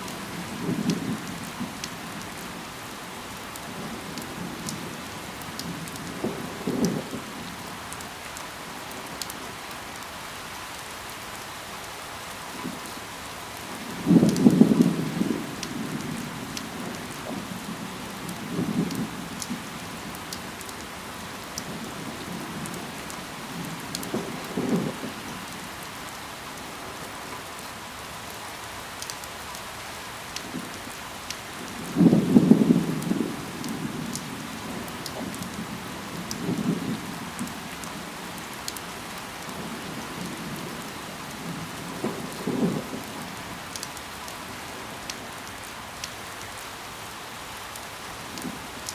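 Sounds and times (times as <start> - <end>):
steady rain falling: 0.0 - 48.9
low thunder rumbles: 0.1 - 2.5, 5.6 - 7.7, 13.8 - 25.8, 31.5 - 45.4.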